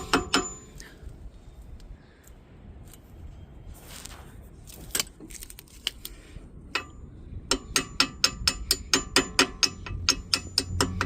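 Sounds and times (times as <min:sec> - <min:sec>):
metal-on-metal hammer taps: 0:07.5 - 0:11.0.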